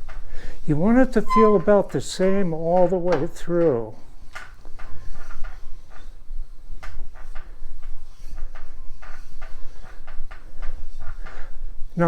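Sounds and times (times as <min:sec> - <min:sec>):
metal lap scraping in bearing race: 0:01.2 - 0:02.0.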